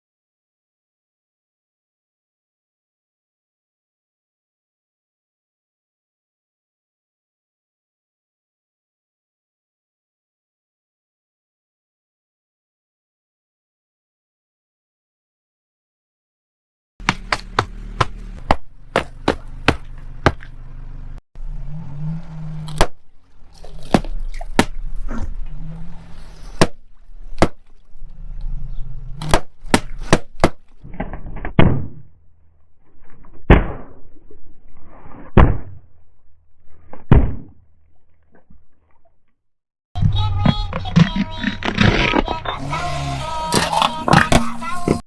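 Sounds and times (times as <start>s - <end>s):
objects crunching under car tyre: 17.0s - 20.7s, 22.0s - 33.6s, 41.0s - 45.0s
car engine rumble: 17.0s - 33.3s.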